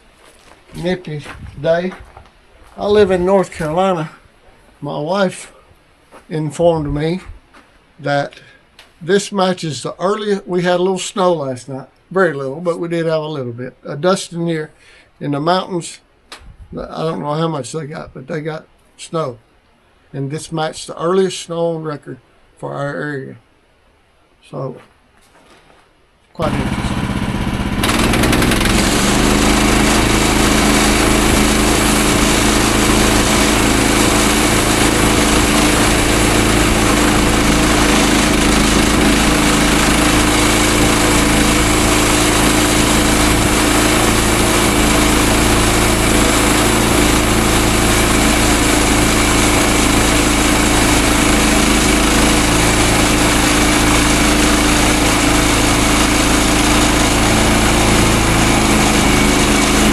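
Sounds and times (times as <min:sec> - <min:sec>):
small gasoline engine running: 0:26.4 - 0:59.9.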